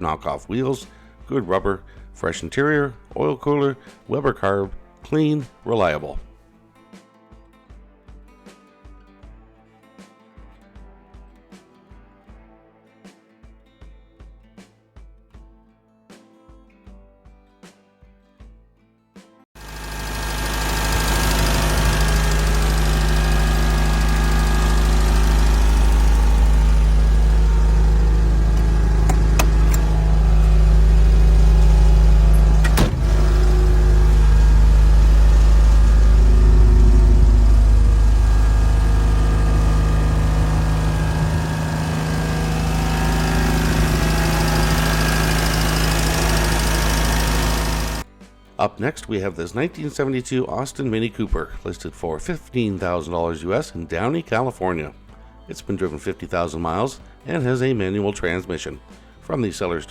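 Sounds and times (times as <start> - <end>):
car engine idling: 19.6 - 48.0.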